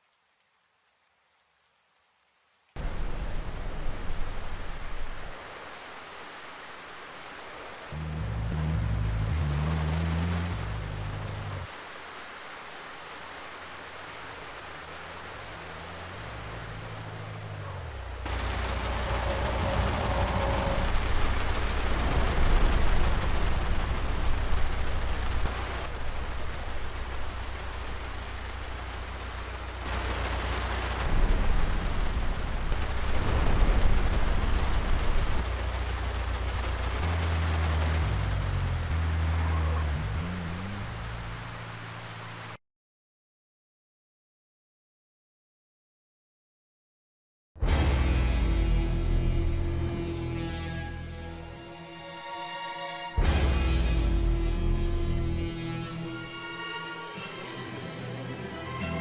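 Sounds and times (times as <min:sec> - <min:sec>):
heavy rain hiss: 0:00.0 - 0:42.6.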